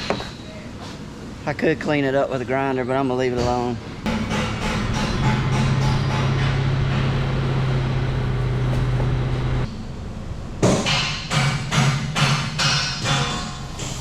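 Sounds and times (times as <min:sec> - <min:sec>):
sharp knocks: 0:04.1 - 0:07.9
machine humming: 0:04.1 - 0:10.4.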